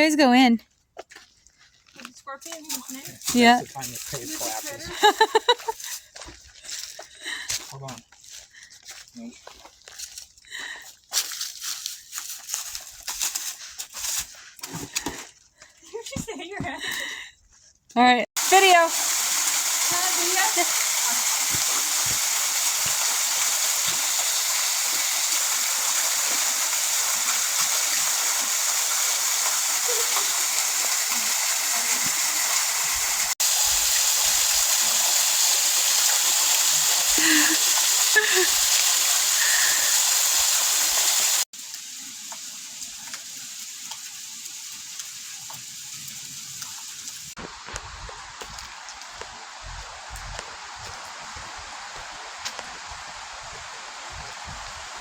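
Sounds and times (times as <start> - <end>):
flowing water rushing: 18.4 - 55.0.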